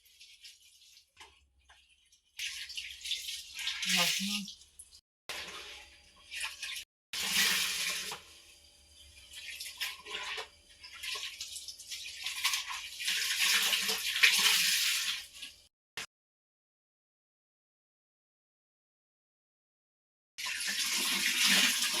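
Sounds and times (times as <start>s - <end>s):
water splashing in a basin: 0.0s - 8.2s, 9.3s - 15.6s, 20.4s - 22.0s.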